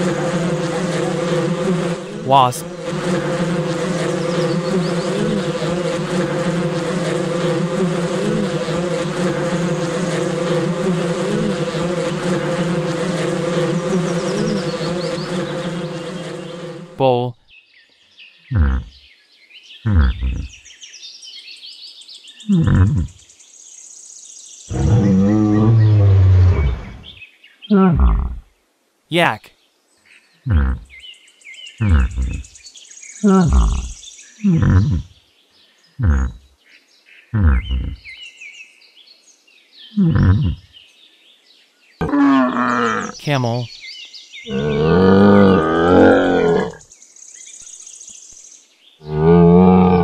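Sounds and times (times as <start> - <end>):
bull lowing: 18.5 - 18.9, 19.9 - 20.5, 22.5 - 23.1, 24.7 - 27.1, 27.8 - 28.4, 30.5 - 30.9, 31.8 - 32.4, 33.3 - 35.0, 36.0 - 36.4, 37.4 - 38.0, 40.0 - 40.6, 42.0 - 43.3, 44.5 - 46.8, 49.0 - 50.0
yak grunting: 18.5 - 18.9, 19.9 - 20.5, 22.5 - 23.1, 24.7 - 27.0, 27.7 - 28.4, 30.5 - 30.9, 31.8 - 32.4, 33.3 - 35.0, 36.0 - 36.4, 37.4 - 38.0, 40.0 - 40.6, 42.0 - 43.7, 44.5 - 46.8, 49.0 - 50.0
small birds chirping: 29.6 - 36.5, 37.2 - 49.0.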